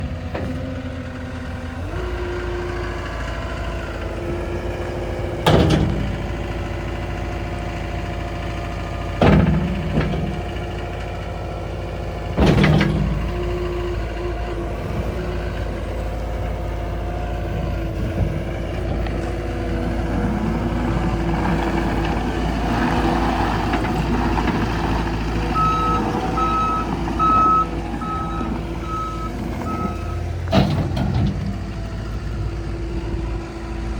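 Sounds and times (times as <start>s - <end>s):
diesel engine revving: 0.0s - 33.9s
backup alarm beeping: 25.6s - 30.2s.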